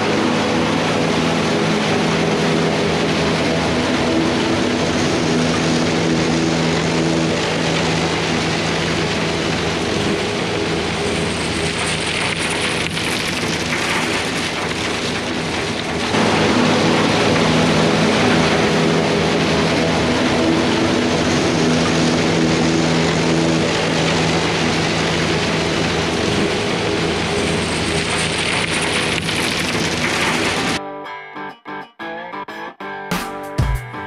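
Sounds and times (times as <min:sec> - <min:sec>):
diesel machinery engine hum: 0:00.0 - 0:30.8.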